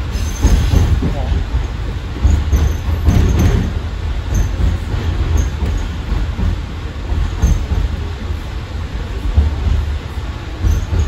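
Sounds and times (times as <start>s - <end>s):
train wheels rumbling on rail: 0.0s - 11.0s
high wheel squeaks: 1.6s - 6.4s.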